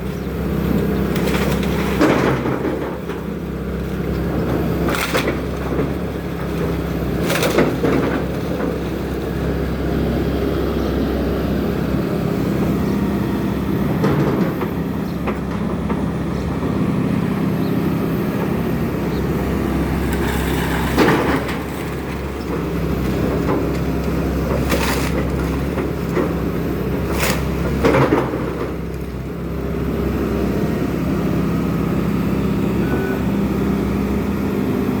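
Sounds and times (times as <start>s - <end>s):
excavator diesel engine running: 0.0s - 35.0s
debris cracking and crashing: 20.0s - 29.1s.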